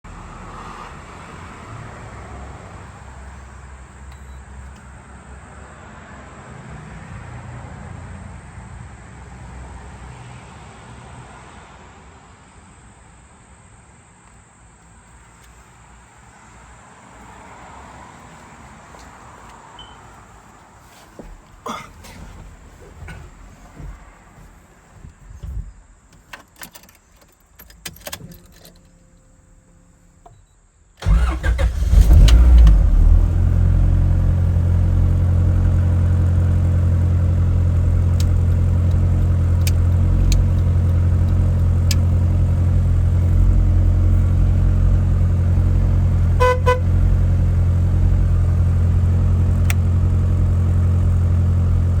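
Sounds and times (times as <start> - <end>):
car engine starting and idling: 18.2 - 52.0
short beeps: 19.8 - 20.0.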